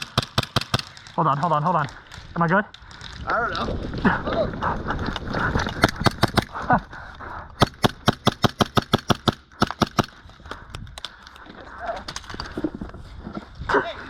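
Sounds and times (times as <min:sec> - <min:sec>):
airsoft gunshots: 0:00.0 - 0:01.1, 0:05.8 - 0:06.6, 0:07.6 - 0:10.2.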